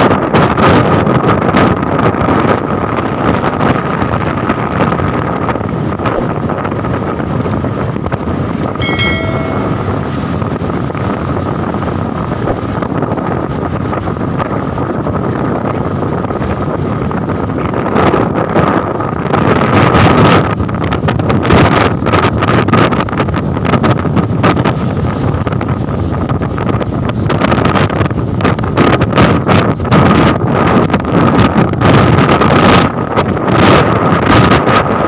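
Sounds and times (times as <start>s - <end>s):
wind rushing over microphone: 0.0s - 35.0s
road noise: 2.2s - 21.3s.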